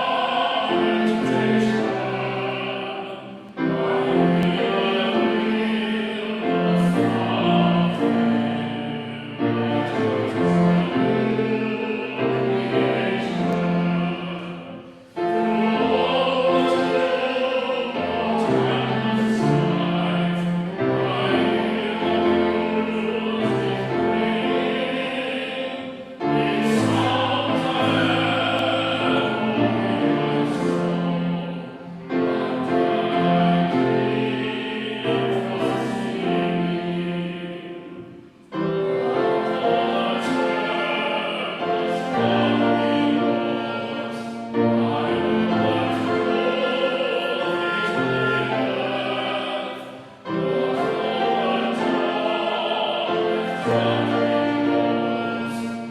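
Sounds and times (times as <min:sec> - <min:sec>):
congregation singing a hymn: 0:00.0 - 0:55.9.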